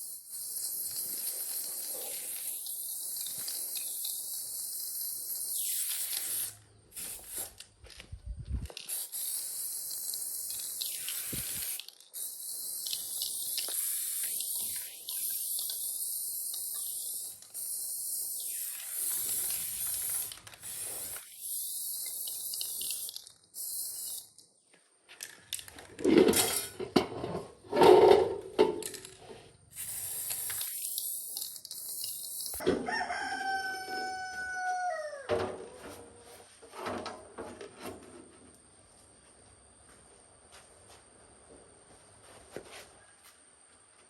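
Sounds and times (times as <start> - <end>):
steady high hiss: 8.7 - 24.4
rooster crowing: 32.6 - 35.4.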